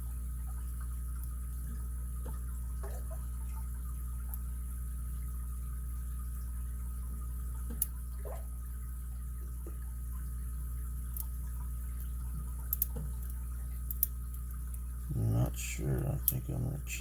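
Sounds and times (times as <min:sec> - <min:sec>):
steady low hum: 0:00.0 - 0:17.0
faint lock pick clicks: 0:12.7 - 0:14.2.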